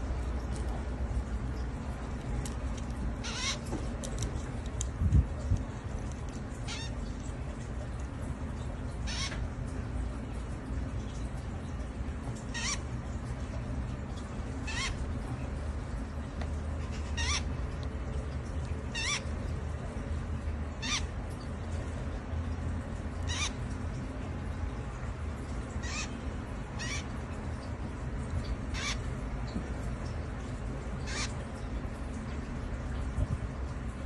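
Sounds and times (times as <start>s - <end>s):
low steady hum: 0.0s - 34.0s
baby bird peeping: 3.2s - 3.7s, 6.6s - 7.1s, 9.0s - 9.4s, 12.5s - 12.9s, 14.6s - 15.1s, 16.8s - 17.6s, 18.9s - 19.4s, 20.8s - 21.1s, 23.2s - 23.6s, 26.8s - 27.1s, 28.7s - 29.1s, 31.0s - 31.4s.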